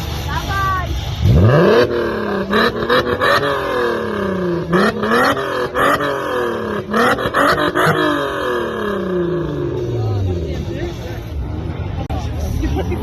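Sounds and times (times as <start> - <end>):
car engine revving hard: 1.2 - 10.9.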